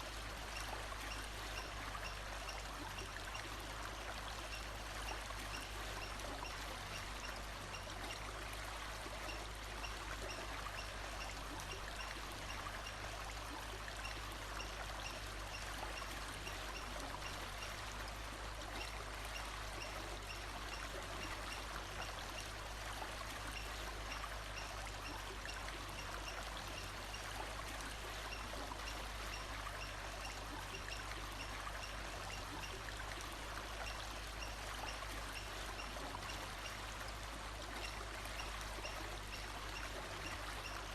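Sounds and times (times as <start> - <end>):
stream running: 0.0 - 40.9.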